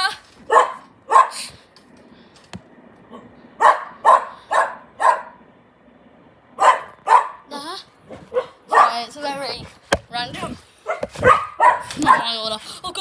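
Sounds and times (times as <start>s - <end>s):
dog barking: 0.5s - 1.5s, 3.1s - 5.4s, 6.6s - 7.5s, 8.1s - 9.1s, 10.8s - 12.4s.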